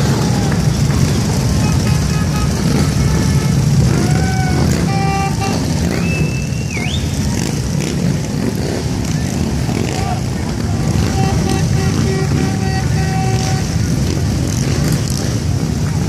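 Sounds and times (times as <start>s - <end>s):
motorcycles rumbling past: 0.0s - 16.0s.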